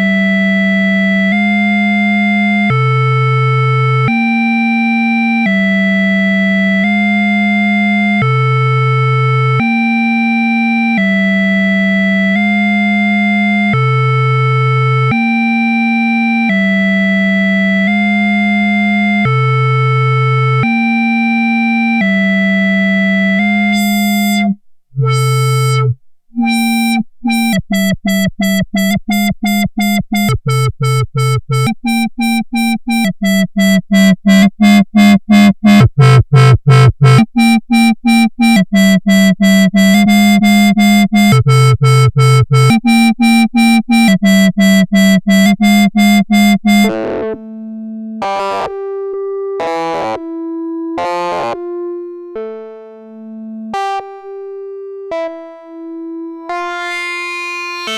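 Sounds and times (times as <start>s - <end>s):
synthesizer sequenced notes: 17.8s - 57.9s.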